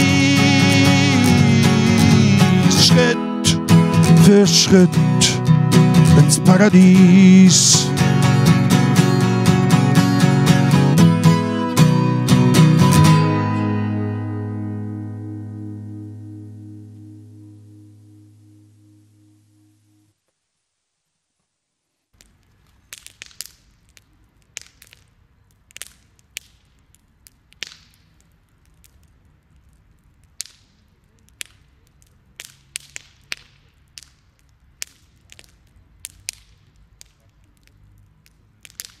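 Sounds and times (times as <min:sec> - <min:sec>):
campfire crackling and popping: 0:00.0 - 0:13.3, 0:22.1 - 0:39.0.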